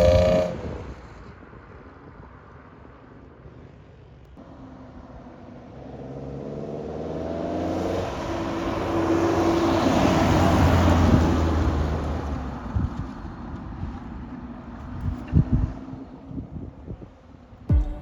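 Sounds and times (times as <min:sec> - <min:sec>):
car accelerating past: 0:05.0 - 0:12.7.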